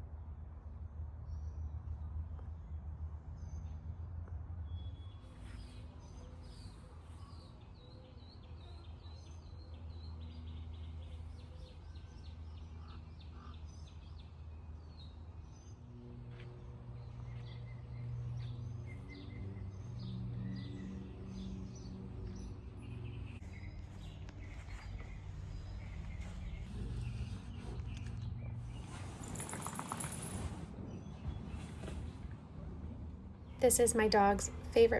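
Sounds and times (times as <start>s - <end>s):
songbirds chirping: 4.7s - 34.9s
low hum: 14.5s - 34.9s.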